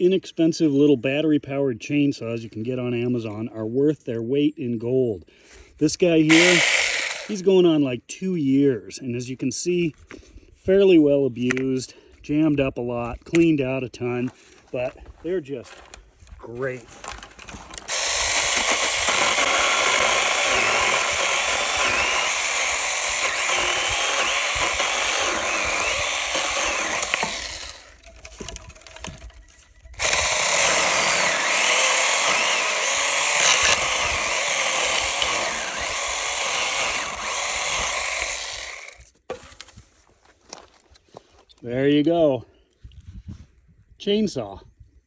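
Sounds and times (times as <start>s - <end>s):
mini chainsaw sawing: 6.3s - 7.5s, 17.7s - 28.5s, 30.0s - 39.1s.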